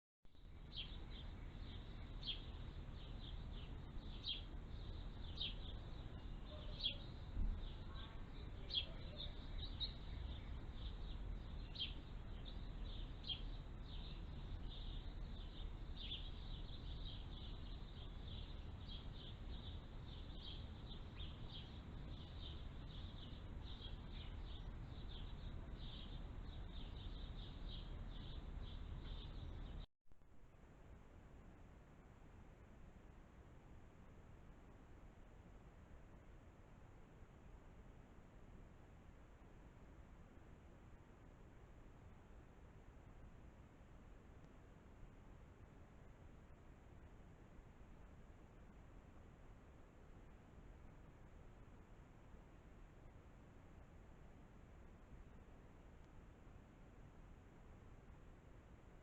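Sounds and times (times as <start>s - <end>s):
small birds chirping: 0.3s - 29.9s
low background rumble: 0.3s - 59.0s.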